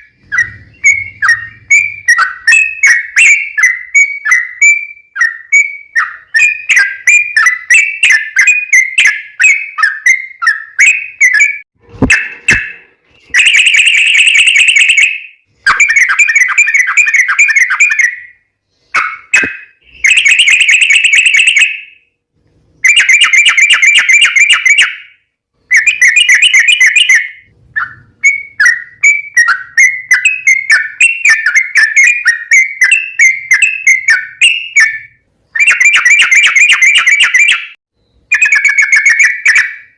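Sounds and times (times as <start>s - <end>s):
bird singing with rolled trills: 0.0s - 22.1s, 22.8s - 39.9s.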